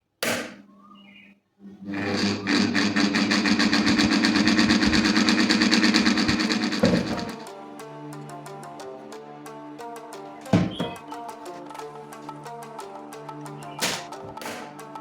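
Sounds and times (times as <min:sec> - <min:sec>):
electric fan motor hum: 0:01.8 - 0:07.4
fast even fan rattle: 0:01.9 - 0:07.4.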